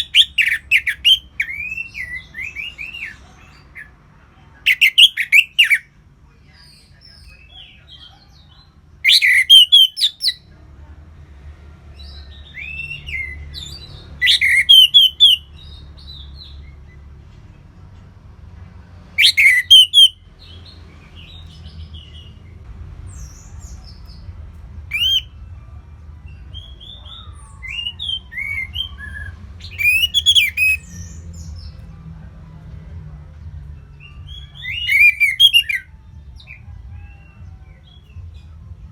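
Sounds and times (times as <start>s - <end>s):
rapid sharp bird chirps: 0.0s - 3.2s, 4.7s - 5.9s, 9.0s - 10.4s, 12.4s - 16.7s, 19.2s - 20.6s, 24.9s - 25.3s, 26.6s - 31.2s, 34.3s - 35.9s
soft whistled bird phrases: 4.7s - 5.9s, 9.0s - 10.4s, 12.5s - 15.6s, 19.2s - 20.2s, 24.9s - 25.3s, 26.5s - 31.1s, 34.1s - 36.6s.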